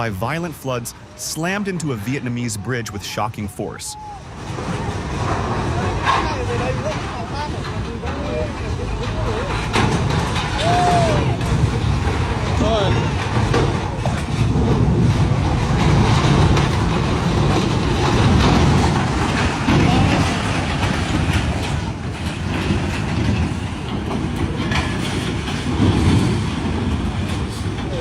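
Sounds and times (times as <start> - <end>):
flood water rushing: 0.0 - 21.8
barge grinding against bridge: 0.0 - 28.0.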